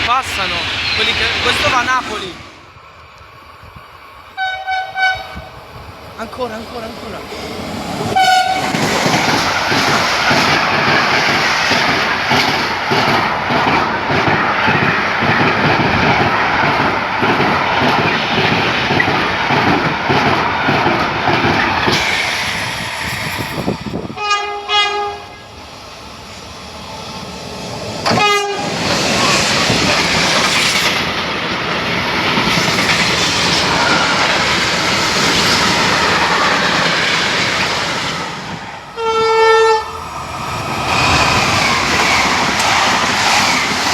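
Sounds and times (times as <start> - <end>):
passing train rushing: 0.0 - 43.9
train horn: 4.4 - 5.5, 8.1 - 8.8, 24.2 - 25.4, 28.1 - 28.8, 39.0 - 40.0
train wheels clacking: 8.0 - 25.1, 40.5 - 43.9.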